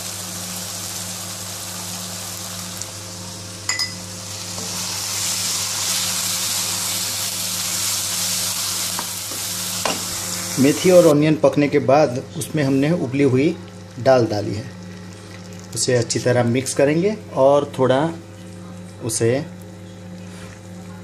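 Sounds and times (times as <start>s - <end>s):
food sizzling in oil: 0.0s - 11.1s.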